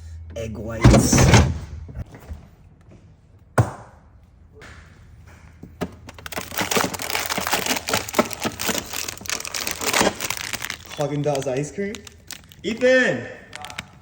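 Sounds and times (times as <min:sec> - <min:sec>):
plastic packaging crinkling: 0:06.0 - 0:14.0.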